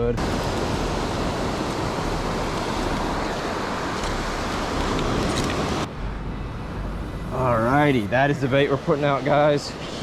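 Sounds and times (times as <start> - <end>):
wind: 0.0 - 10.0
surf rushing: 0.2 - 10.0.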